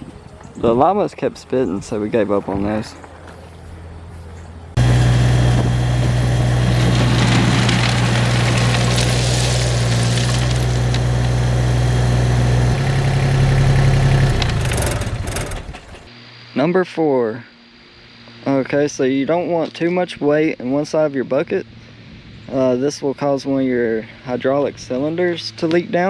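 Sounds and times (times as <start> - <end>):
tractor diesel engine running: 3.3 - 16.1.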